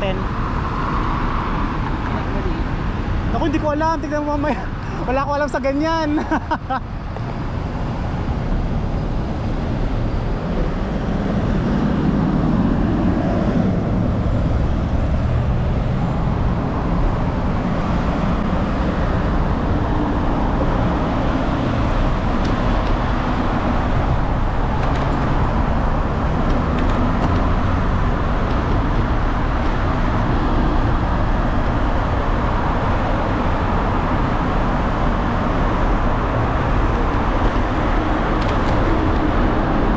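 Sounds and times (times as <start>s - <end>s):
dense low rumble: 0.0s - 39.9s
road traffic noise: 0.0s - 39.9s.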